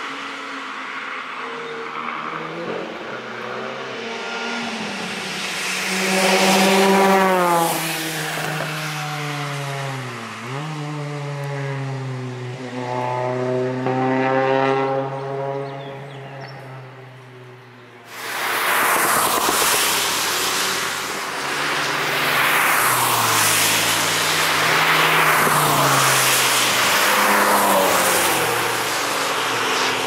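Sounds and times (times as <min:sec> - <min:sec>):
racing car engine passing: 0:00.9 - 0:30.0
tyre hiss on wet tarmac: 0:04.5 - 0:10.6, 0:18.1 - 0:30.0.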